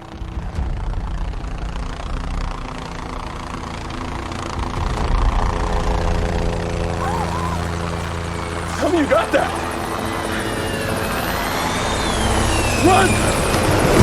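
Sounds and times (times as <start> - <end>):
helicopter rotor and engine: 0.0 - 14.0.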